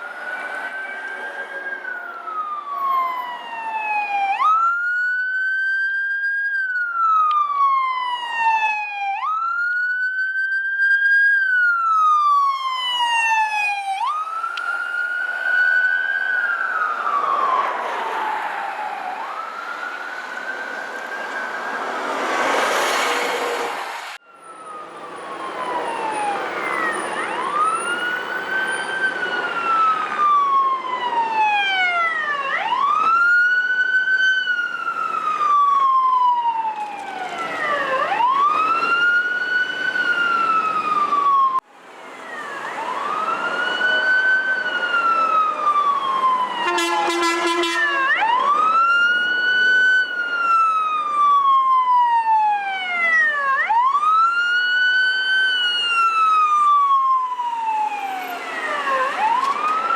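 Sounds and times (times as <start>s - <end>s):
vehicle road noise: 0.0s - 5.8s, 11.1s - 59.9s
emergency vehicle siren wailing: 0.0s - 59.9s
horn blast: 46.6s - 48.2s.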